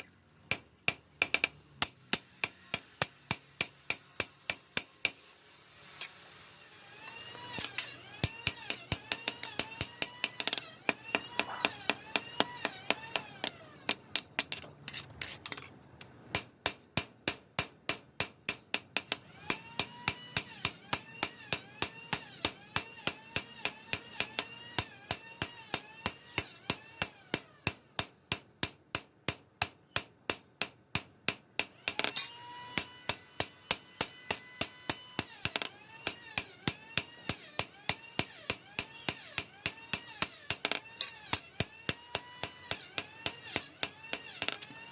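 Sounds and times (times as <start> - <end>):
hammering on steel: 16.3 - 32.1.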